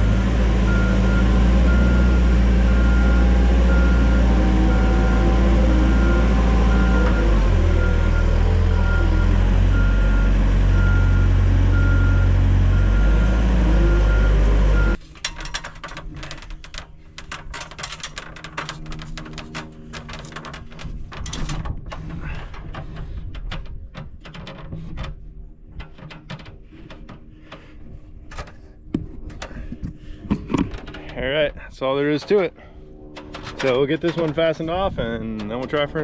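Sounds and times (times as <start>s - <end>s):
heavy machine engine running: 0.0s - 15.0s, 32.0s - 36.0s
reversing alarm beeping: 0.7s - 15.0s
knocks and clicks on timber: 15.6s - 27.7s.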